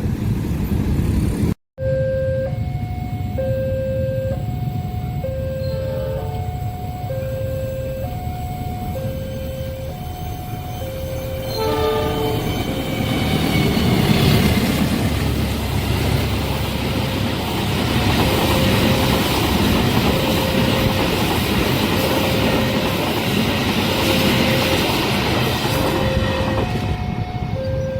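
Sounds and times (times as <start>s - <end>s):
train wheels rumbling on rails: 0.0s - 1.6s, 4.3s - 27.9s
train horn: 3.5s - 8.1s, 8.9s - 14.0s, 25.7s - 27.9s.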